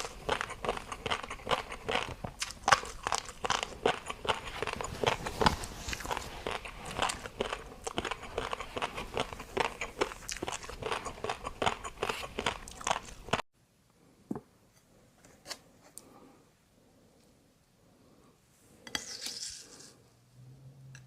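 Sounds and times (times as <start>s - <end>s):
chewing and crunching food: 0.0s - 13.5s.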